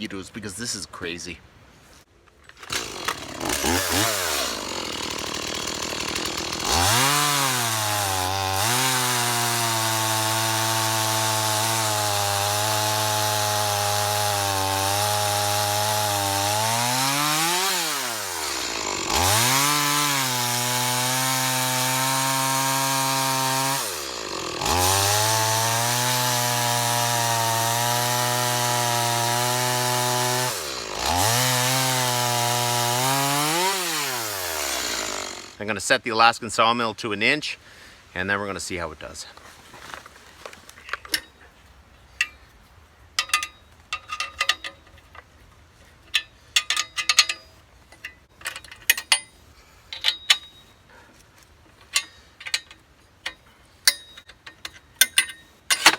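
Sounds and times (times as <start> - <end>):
chainsaw cutting log: 2.5 - 35.8
chainsaw idling: 2.6 - 35.7.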